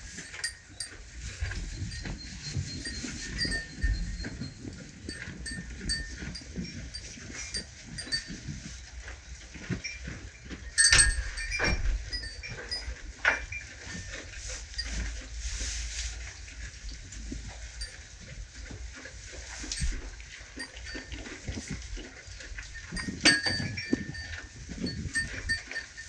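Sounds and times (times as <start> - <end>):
animals rustling: 0.0 - 26.0
knocks and clinks: 0.1 - 8.4, 9.5 - 15.1, 22.7 - 26.0.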